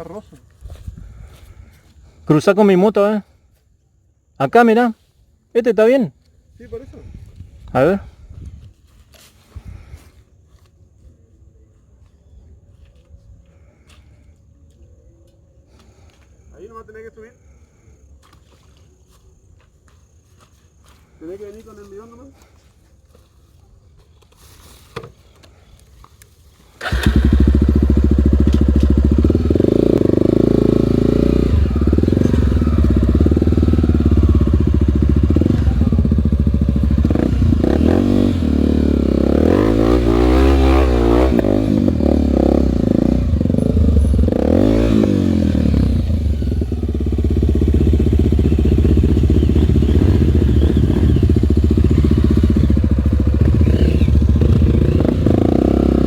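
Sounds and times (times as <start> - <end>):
motorcycle engine revving: 26.8 - 56.0.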